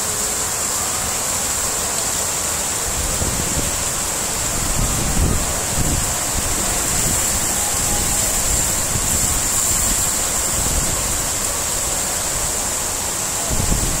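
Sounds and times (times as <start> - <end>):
heavy rain pouring: 0.0 - 14.0
wind buffeting microphone: 2.9 - 14.0.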